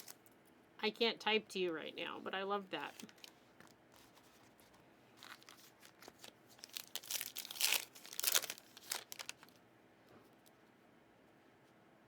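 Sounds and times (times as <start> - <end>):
plastic wrapper crinkling and tearing: 0.0 - 0.2, 2.9 - 9.6.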